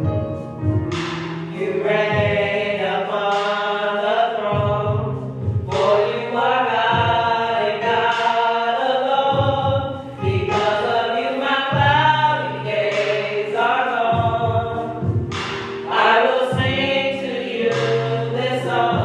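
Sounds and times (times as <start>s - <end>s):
low bass notes: 0.0s - 2.8s, 4.5s - 8.2s, 9.3s - 10.9s, 11.7s - 13.4s, 14.1s - 15.8s, 16.5s - 19.0s
choir singing: 1.5s - 4.9s, 12.4s - 14.7s, 15.9s - 19.0s.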